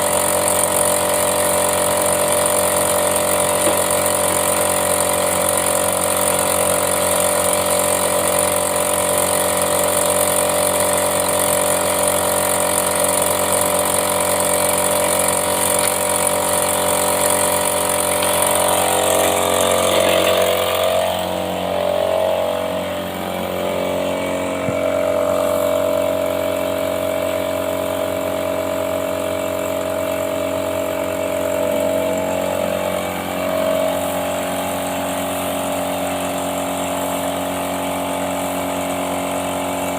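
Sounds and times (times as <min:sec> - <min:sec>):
machine motor humming: 0:00.0 - 0:39.9.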